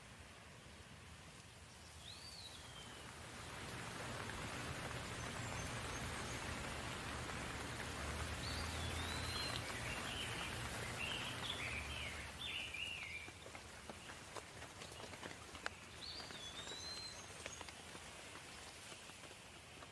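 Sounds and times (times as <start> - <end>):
steady rain hissing: 0.0 - 19.9
bird chirping: 1.7 - 3.1, 8.3 - 14.1, 14.8 - 17.9.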